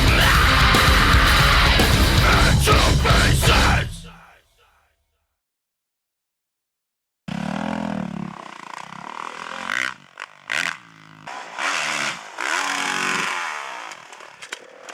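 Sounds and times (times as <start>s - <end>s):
motorcycle engine revving: 0.0s - 3.8s, 7.3s - 14.9s.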